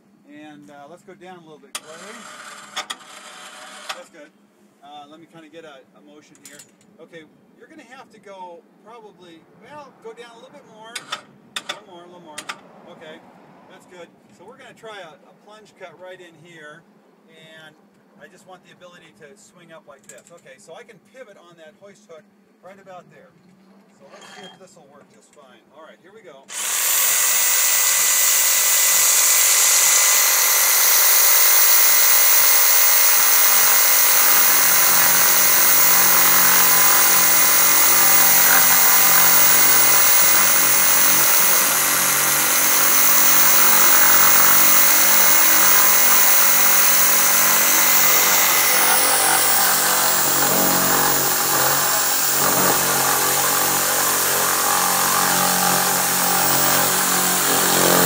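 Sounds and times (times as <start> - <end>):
reciprocating saw cutting wood: 26.5 - 58.0.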